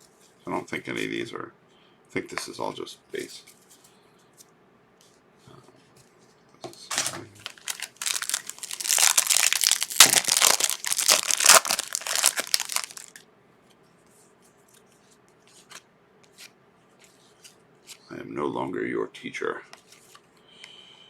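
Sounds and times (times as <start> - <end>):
foil wrapper crinkling: 6.9 - 13.2.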